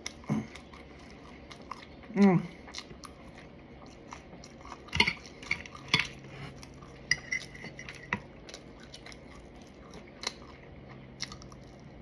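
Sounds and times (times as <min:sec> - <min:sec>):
cutlery clinking against plate: 0:04.9 - 0:06.2, 0:07.1 - 0:08.2.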